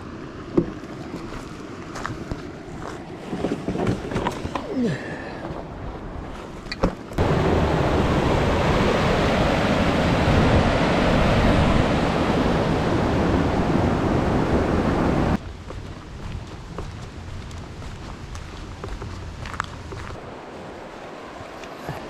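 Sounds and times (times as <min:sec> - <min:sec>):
creek water rushing over rapids: 0:07.2 - 0:15.4, 0:17.7 - 0:22.0.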